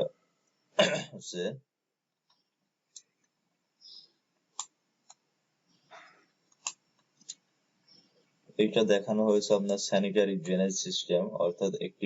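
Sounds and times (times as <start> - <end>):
computer mouse clicks: 4.5 - 5.3, 5.9 - 7.4.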